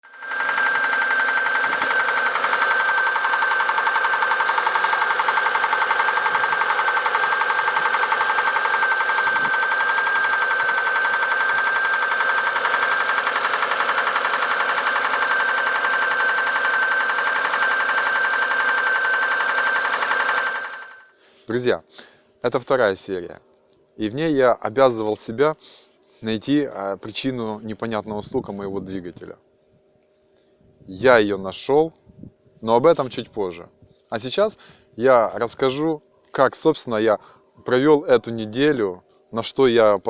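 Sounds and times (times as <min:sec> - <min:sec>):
car engine knocking: 0:00.3 - 0:20.9.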